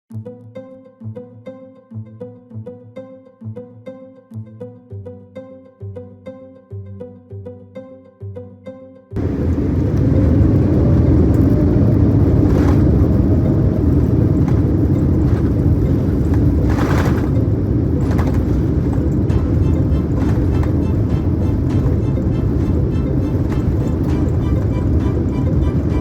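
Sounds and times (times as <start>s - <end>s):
airliner engines and airflow rumble: 9.2s - 26.0s
cabin rattles: 14.4s - 26.0s.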